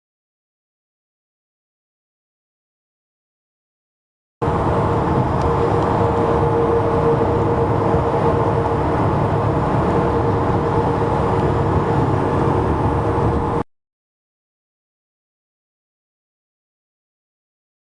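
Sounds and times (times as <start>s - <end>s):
steady hum: 4.4s - 13.6s
trucks driving past: 4.4s - 13.6s.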